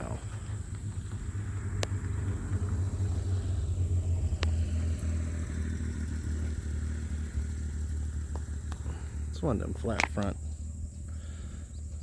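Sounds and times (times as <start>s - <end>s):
vehicle rumble: 0.0s - 12.0s
sharp clicks: 9.8s - 10.4s.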